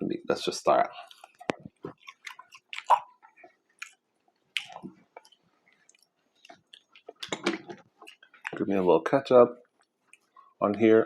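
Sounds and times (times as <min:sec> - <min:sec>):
chewing and crunching food: 0:00.9 - 0:09.0, 0:09.6 - 0:10.9
wet mouth clicks: 0:01.0 - 0:07.4.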